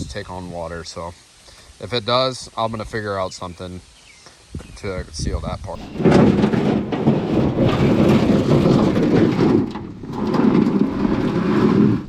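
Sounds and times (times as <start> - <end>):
boat hull scraping on bank: 5.8 - 12.0.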